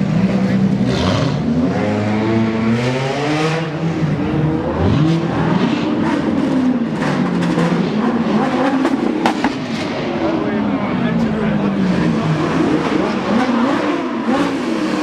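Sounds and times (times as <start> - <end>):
sports car engines revving: 0.0 - 15.0.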